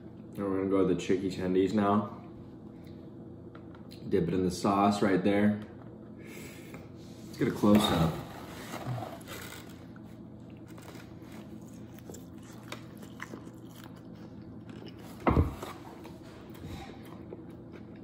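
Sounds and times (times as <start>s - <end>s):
biting and chewing crunchy food: 9.2s - 18.0s.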